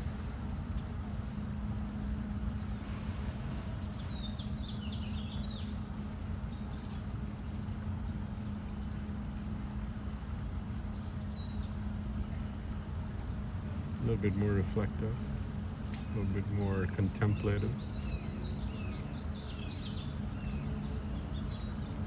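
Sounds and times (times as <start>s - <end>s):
low hum and rumble: 0.0s - 22.0s
songbird chirping: 14.6s - 22.0s.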